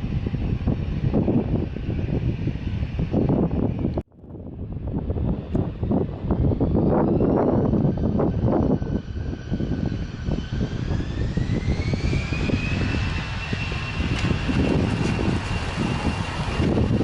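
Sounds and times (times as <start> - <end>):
jet engines rumbling: 0.0 - 17.0
rising jet engine whine: 0.0 - 17.0.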